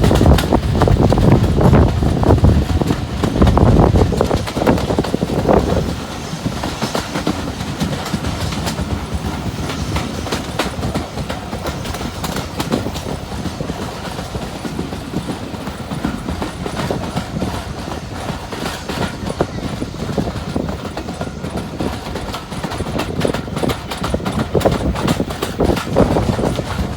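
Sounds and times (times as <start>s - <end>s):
train rolling rumble: 0.0s - 26.9s
train wheels clicking over rail joints: 0.0s - 26.9s.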